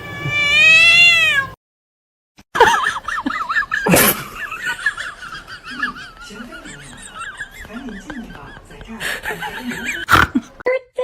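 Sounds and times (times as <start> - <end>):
cat meowing: 0.0 - 1.6.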